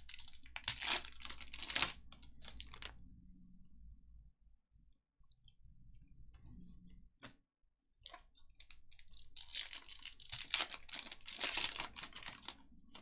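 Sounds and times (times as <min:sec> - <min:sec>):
plastic wrapper tearing and crinkling: 0:00.0 - 0:02.9, 0:08.6 - 0:13.0.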